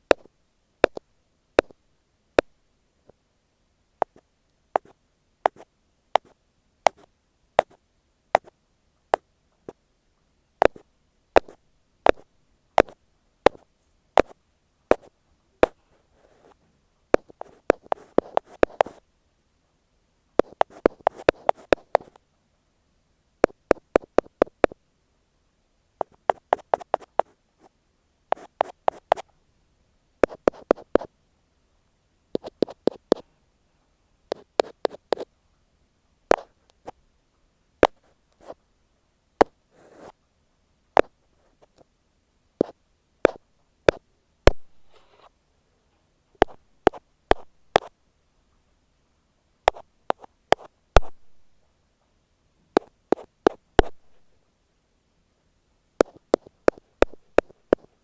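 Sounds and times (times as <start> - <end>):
ear pick tapping on microphone: 0.1 - 1.0, 1.6 - 1.8, 10.6 - 10.8, 11.4 - 13.6, 14.2 - 15.8, 17.2 - 19.0, 20.4 - 22.1, 23.4 - 24.8, 26.0 - 27.3, 28.3 - 29.2, 37.8 - 38.6, 42.6 - 44.8, 46.4 - 47.9, 49.7 - 51.3, 52.8 - 54.3, 56.0 - 57.9
rubbing on microphone: 4.8 - 7.8, 11.4 - 16.6, 17.2 - 19.0, 20.4 - 22.2, 26.0 - 27.4, 28.3 - 29.3, 30.2 - 31.1, 32.4 - 33.2, 34.3 - 35.3, 39.7 - 40.2, 44.5 - 45.4, 46.4 - 47.9, 49.7 - 51.2, 56.0 - 58.0.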